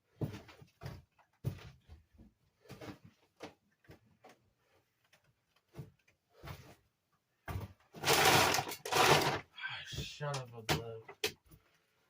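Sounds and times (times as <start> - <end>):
scuffs and knocks: 0.0 - 8.0.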